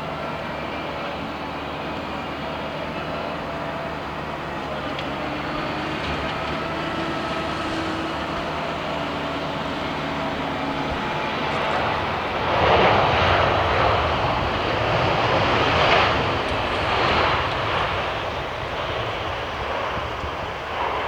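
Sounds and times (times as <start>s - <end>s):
jet engines rumbling and whining: 0.0s - 21.0s.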